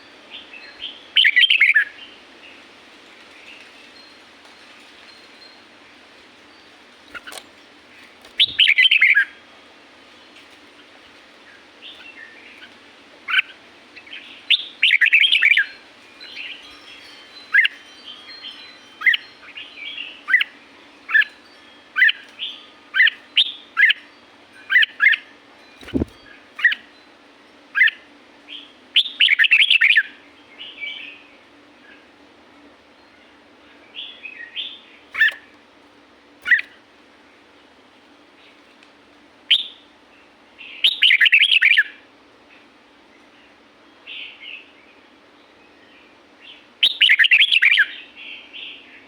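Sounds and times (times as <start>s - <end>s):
bulbul warbling song: 8.3s - 9.2s, 25.8s - 26.8s.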